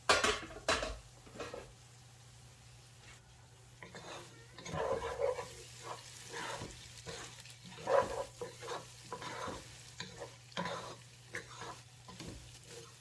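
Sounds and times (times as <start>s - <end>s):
lentils sizzling in a pot: 0.0s - 13.0s
utensil stirring and scraping: 3.8s - 13.0s.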